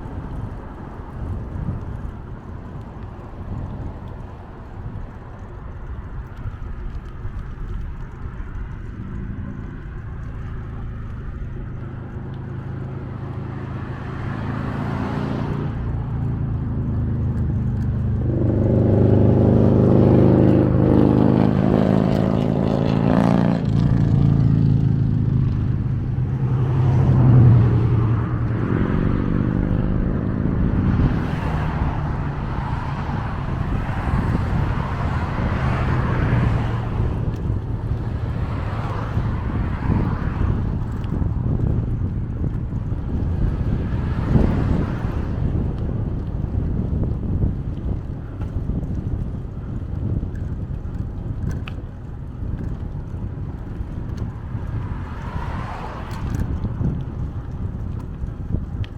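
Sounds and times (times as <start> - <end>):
vehicle engine passing by: 8.0 - 48.0, 53.0 - 58.6.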